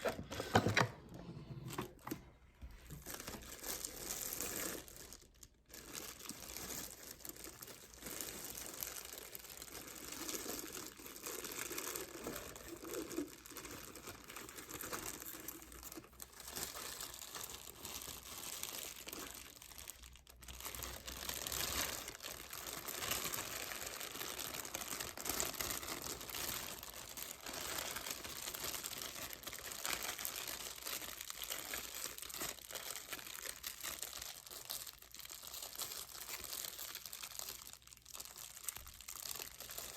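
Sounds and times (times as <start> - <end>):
packaging crinkling and rustling: 0.0 - 39.9.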